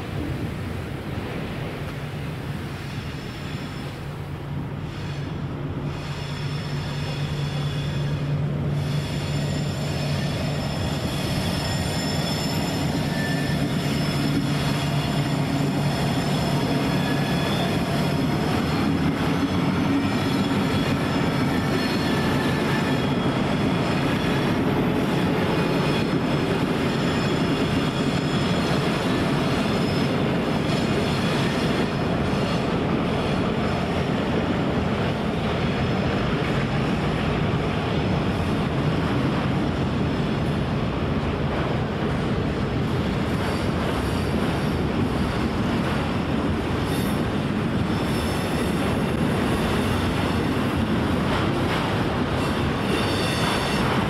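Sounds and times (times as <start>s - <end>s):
train rumbling past: 0.0s - 54.0s
wheels squealing: 4.8s - 30.4s, 52.4s - 54.0s.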